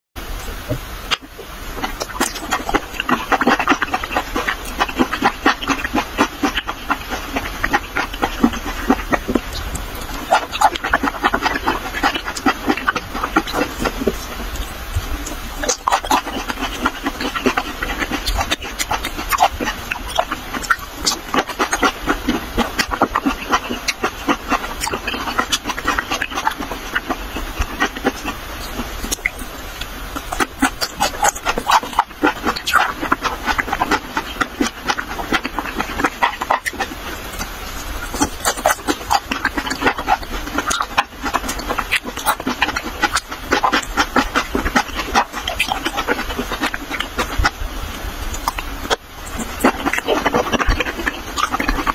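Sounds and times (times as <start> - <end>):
person chewing with mouth clicks: 0.4 - 51.9.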